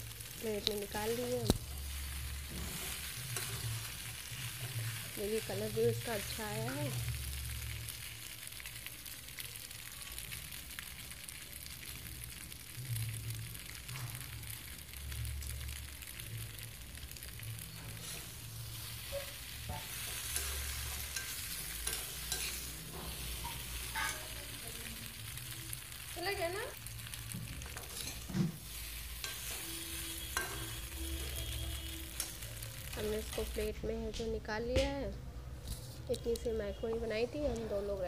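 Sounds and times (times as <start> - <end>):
macaroni sizzling in a wok: 0.0 - 38.0
spatula scraping a pan: 1.8 - 5.2, 17.9 - 24.3, 27.6 - 32.6.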